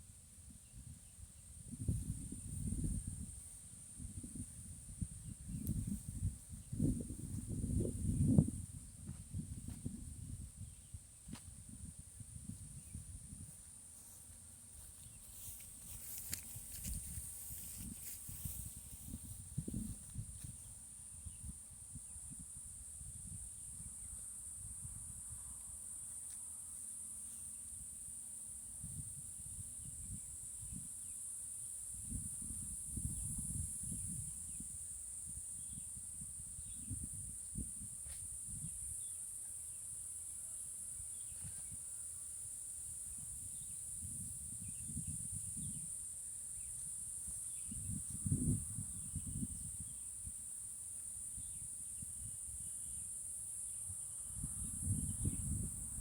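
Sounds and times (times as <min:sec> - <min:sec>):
insect chorus shrilling: 0:40.5 - 0:56.0.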